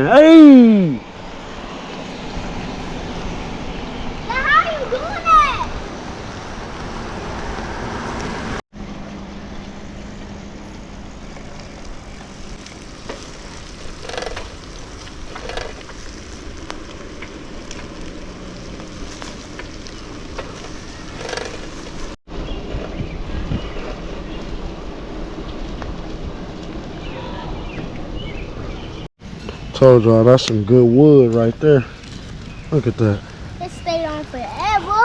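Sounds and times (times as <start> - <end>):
campfire hissing: 0.1 - 8.6, 9.4 - 22.2, 31.6 - 35.0
fire popping: 4.4 - 8.6, 9.6 - 22.2, 31.8 - 35.0.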